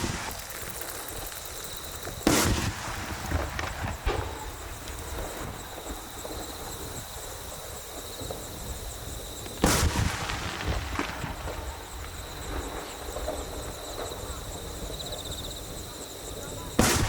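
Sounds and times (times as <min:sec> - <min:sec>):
firework crackles: 0:00.0 - 0:17.0
firework bang: 0:02.1 - 0:06.9, 0:09.6 - 0:14.6, 0:16.7 - 0:17.0.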